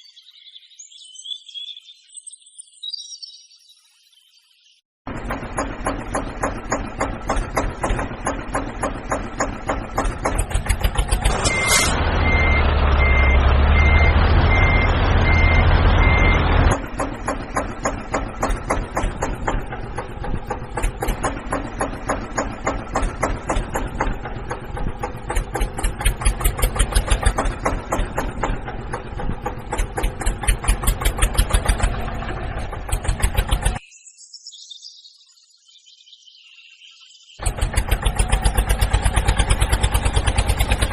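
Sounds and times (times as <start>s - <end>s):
tractor engine running: 5.1s - 33.8s, 37.4s - 40.9s
reversing alarm beeping: 11.2s - 16.5s.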